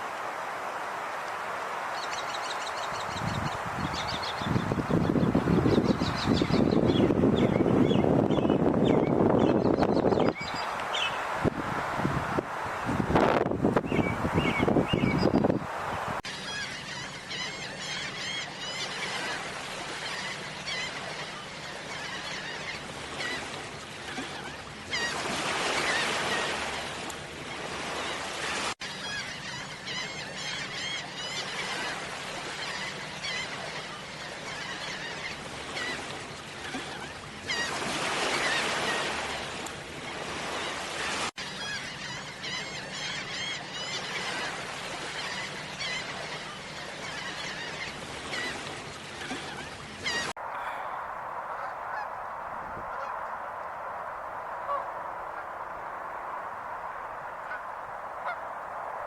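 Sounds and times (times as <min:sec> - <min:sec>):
rushing background noise: 0:50.4 - 0:59.0.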